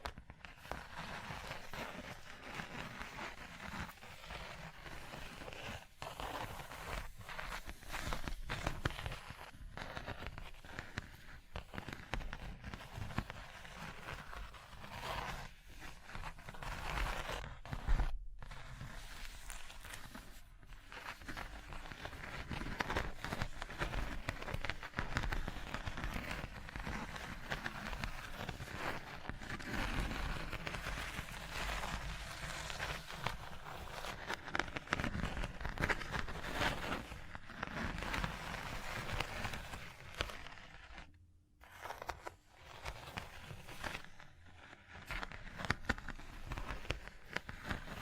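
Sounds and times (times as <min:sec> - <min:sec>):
crackles: 0:15.8 - 0:48.0.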